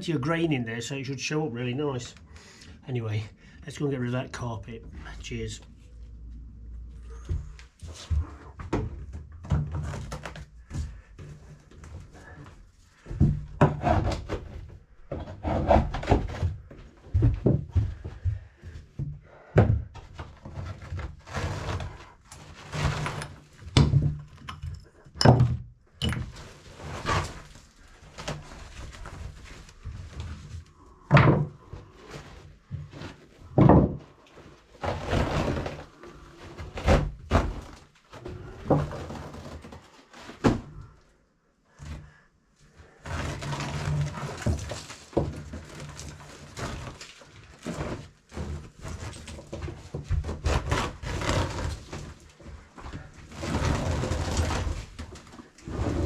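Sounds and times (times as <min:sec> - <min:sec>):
thuds and knocks on stairs: 0:16.0 - 0:20.2, 0:33.5 - 0:34.1
carpet tearing and scraping: 0:20.4 - 0:23.7, 0:26.5 - 0:30.3, 0:34.8 - 0:37.8, 0:42.9 - 0:52.4, 0:53.0 - 0:56.0.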